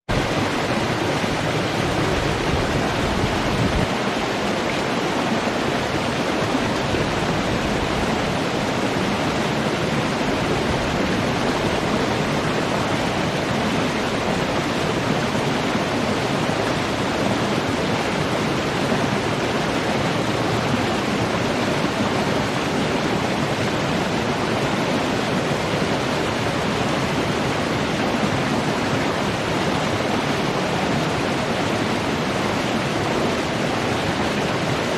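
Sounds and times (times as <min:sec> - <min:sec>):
running water rushing: 0:00.0 - 0:34.9.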